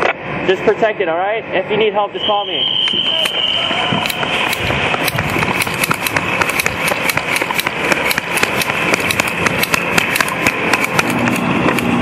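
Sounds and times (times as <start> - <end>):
airsoft guns firing: 4.0 - 11.5.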